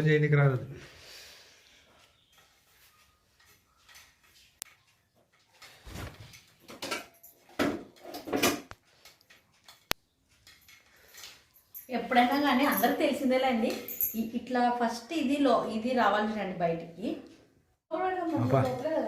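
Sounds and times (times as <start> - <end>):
rustling and knocking of objects: 2.3 - 11.5.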